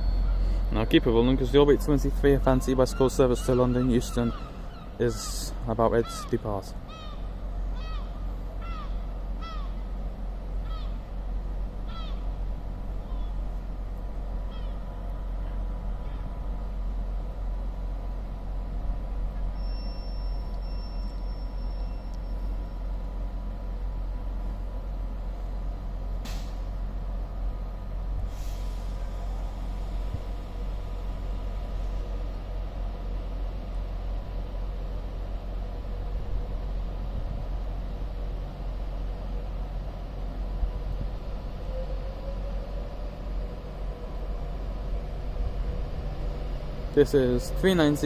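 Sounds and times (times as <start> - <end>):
electric train rumbling and humming: 0.0 - 48.0
bird calling: 0.1 - 10.0, 10.6 - 11.1, 11.8 - 12.4, 13.0 - 13.4
short hisses: 28.3 - 30.0.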